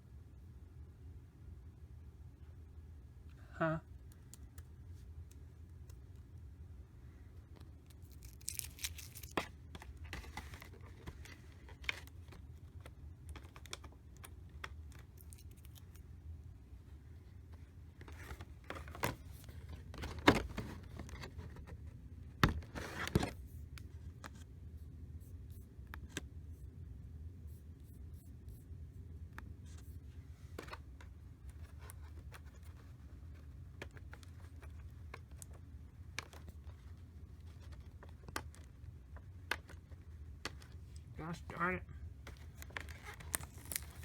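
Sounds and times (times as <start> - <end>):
plastic packaging clicks and scrapes: 7.6 - 16.0, 42.3 - 44.0.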